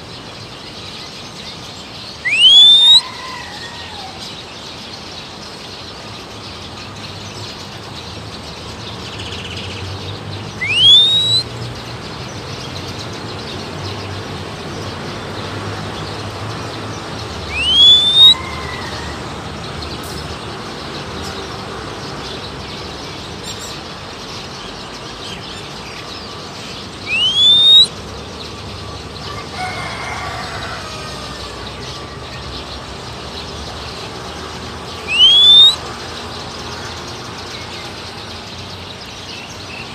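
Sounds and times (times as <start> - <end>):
steady outdoor hiss: 0.0 - 39.9
upward gliding whistles: 2.2 - 3.1, 10.6 - 11.5, 17.5 - 18.4, 27.0 - 27.9, 35.0 - 35.8
faint bird calls: 2.2 - 4.3, 10.6 - 11.5, 17.5 - 19.1, 27.0 - 27.9, 35.0 - 35.8.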